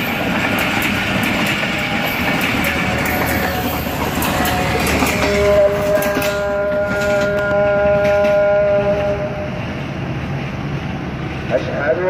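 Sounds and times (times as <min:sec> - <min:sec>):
train coaches clattering past: 0:00.0 - 0:12.0
multi-tone train horn: 0:01.8 - 0:09.9.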